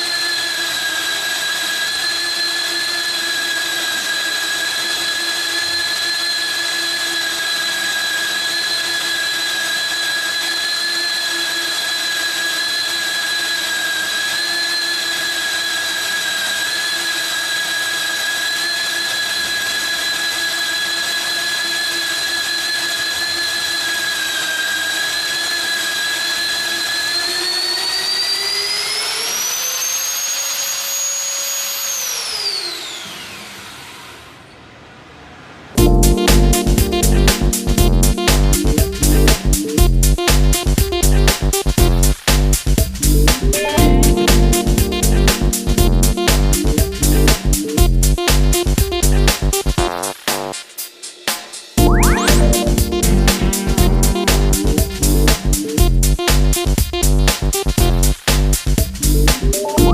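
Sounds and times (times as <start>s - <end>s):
drill motor whining: 0.0s - 34.5s.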